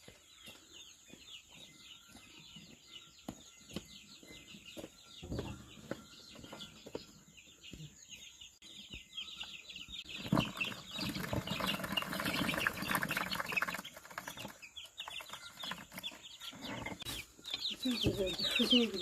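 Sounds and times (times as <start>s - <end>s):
chickens calling: 0.0s - 19.0s
rustling: 10.1s - 19.0s.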